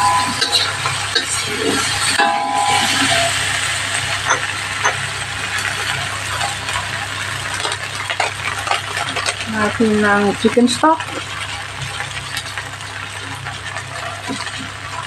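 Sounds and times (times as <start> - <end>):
metal turner scraping a pan: 0.0 - 5.0
food sizzling in a wok: 0.0 - 15.0
metal clicks on a pan: 4.2 - 5.1.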